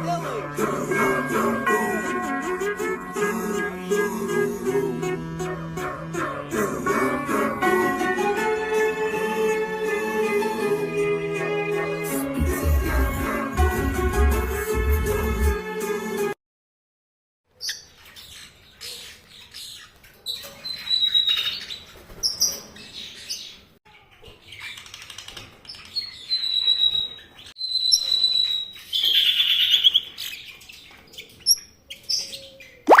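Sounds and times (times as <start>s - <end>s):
small birds chirping: 17.5s - 33.0s.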